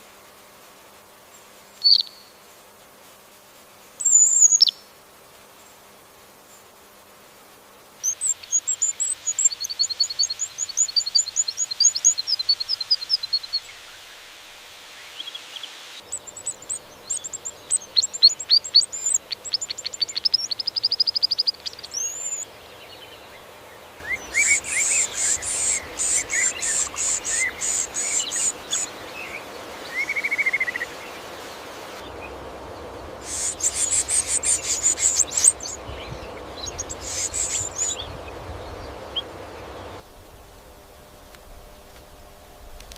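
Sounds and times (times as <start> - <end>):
faint steady hiss: 0.0 - 42.9
birds chirping and trilling: 15.1 - 40.0.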